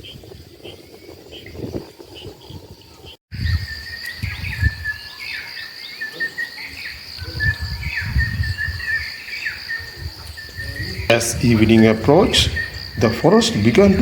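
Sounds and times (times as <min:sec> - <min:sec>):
insects buzzing: 0:00.0 - 0:14.0
low rumbles: 0:10.0 - 0:14.0.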